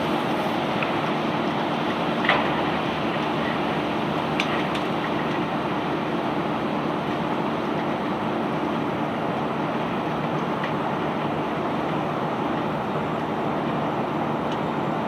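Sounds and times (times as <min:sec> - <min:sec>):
heavy machinery engine droning: 0:00.0 - 0:15.0.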